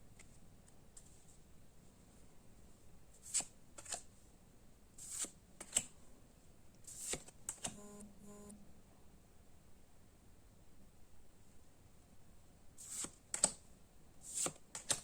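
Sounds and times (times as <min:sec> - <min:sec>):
trading cards sliding together: 0:03.2 - 0:04.1, 0:05.0 - 0:05.9, 0:06.8 - 0:07.8, 0:12.8 - 0:13.6, 0:14.2 - 0:15.0
low hum: 0:07.7 - 0:09.4.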